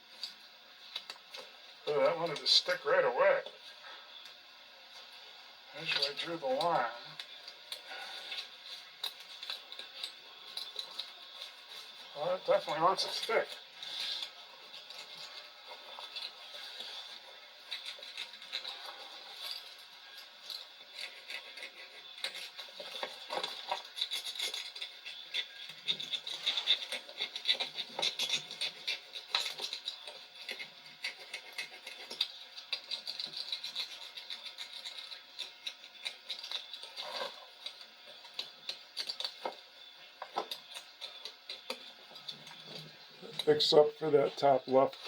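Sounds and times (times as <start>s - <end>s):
rubbing and scratching on rubber: 20.3s - 38.7s.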